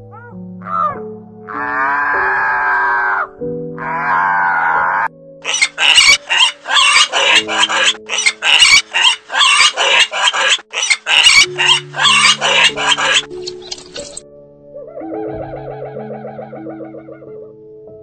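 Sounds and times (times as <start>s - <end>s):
background music: 0.0s - 18.0s
pig grunting: 0.1s - 14.0s.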